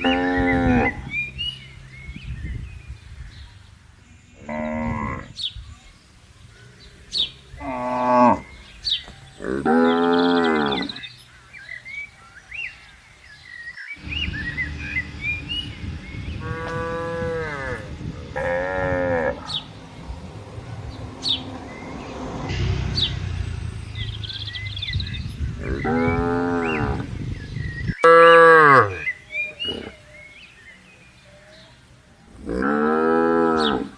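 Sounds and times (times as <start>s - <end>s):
birds chirping: 0.0s - 33.9s
cattle mooing: 16.4s - 19.7s, 25.6s - 27.1s.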